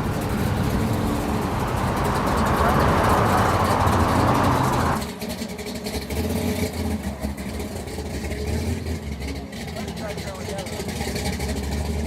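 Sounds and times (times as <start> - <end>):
loud rushing noise: 0.0 - 5.0
car engine running: 0.0 - 5.9.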